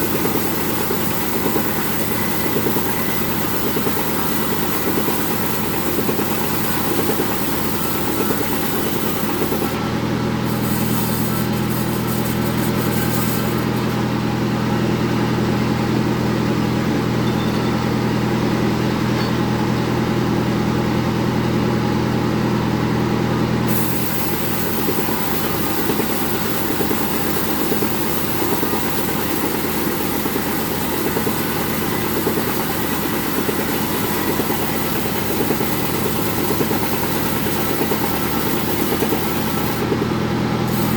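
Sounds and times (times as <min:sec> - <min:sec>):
bandsaw cutting wood: 0:00.0 - 0:09.8, 0:10.4 - 0:14.0, 0:23.7 - 0:40.0, 0:40.7 - 0:40.9.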